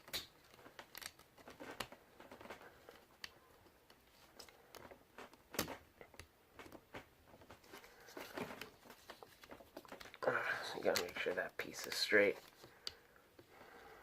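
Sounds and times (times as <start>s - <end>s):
plastic toy parts clicking: 0.0s - 2.0s.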